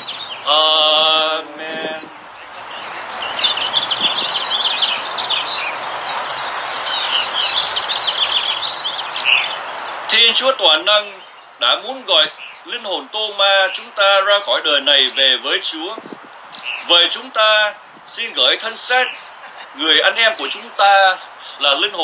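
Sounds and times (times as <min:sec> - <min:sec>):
outdoor background hiss: 0:00.0 - 0:22.0
small birds chirping: 0:00.0 - 0:22.0.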